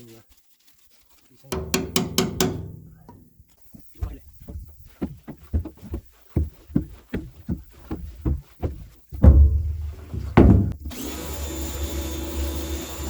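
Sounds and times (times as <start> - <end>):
rapid knocking: 1.6 - 10.9
heavy thumps: 1.6 - 11.0
electric motor whining: 10.8 - 13.0.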